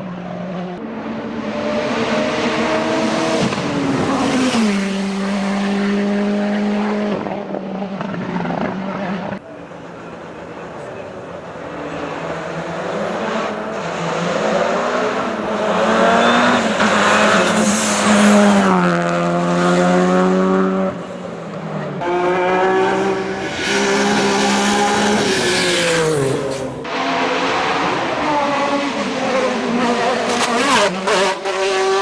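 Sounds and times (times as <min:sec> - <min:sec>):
race car engine at full throttle: 0:00.0 - 0:32.0.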